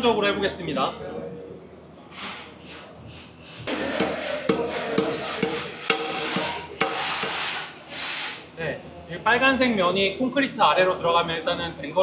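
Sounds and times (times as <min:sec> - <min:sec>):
hammer striking metal anchor: 0:03.7 - 0:07.4.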